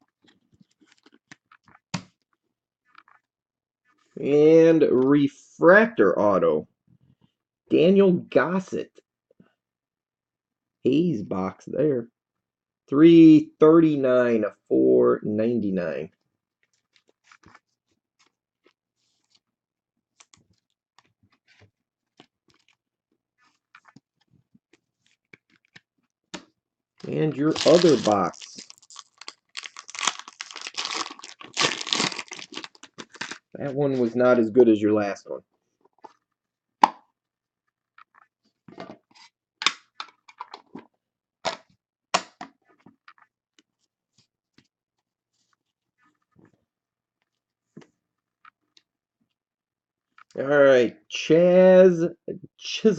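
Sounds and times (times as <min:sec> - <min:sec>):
trading cards clicking and rustling: 0:27.0 - 0:33.4.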